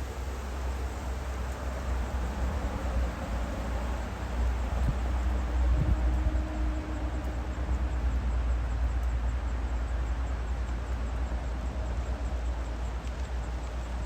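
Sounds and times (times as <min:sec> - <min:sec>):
faint steady hum: 0:00.0 - 0:14.0
wind buffeting microphone: 0:02.0 - 0:06.8.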